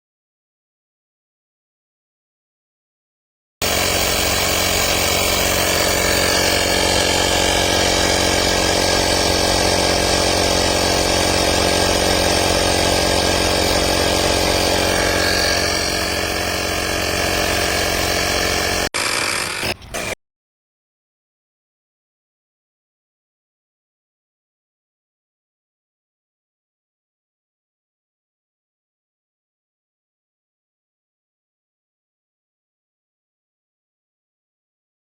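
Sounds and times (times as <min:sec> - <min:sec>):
tire inflator compressor running: 0:03.6 - 0:20.2.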